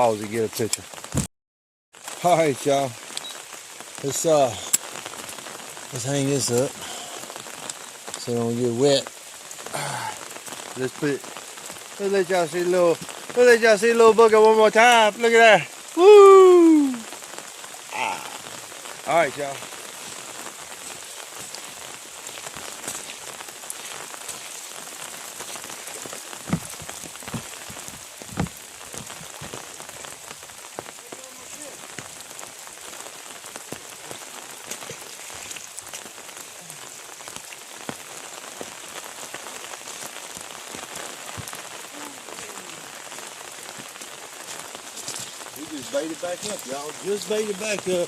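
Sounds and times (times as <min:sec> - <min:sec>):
heavy rain pouring: 0:00.0 - 0:01.3, 0:02.0 - 0:48.0
sharp knocks: 0:28.3 - 0:29.3.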